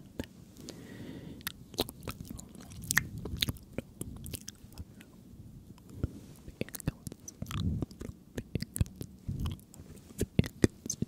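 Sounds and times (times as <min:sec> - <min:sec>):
mouth clicks and smacks: 0:01.4 - 0:05.1, 0:05.8 - 0:11.0
soft low rustle: 0:04.2 - 0:08.0, 0:09.1 - 0:11.0.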